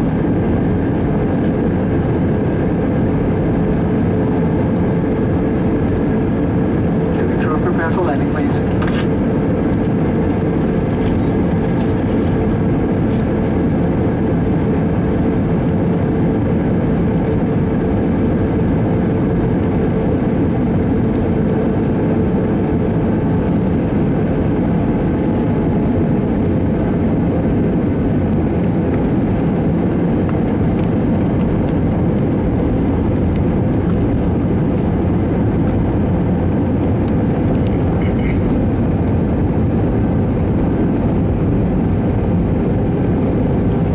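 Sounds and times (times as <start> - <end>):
jet engines roaring: 0.0 - 43.9.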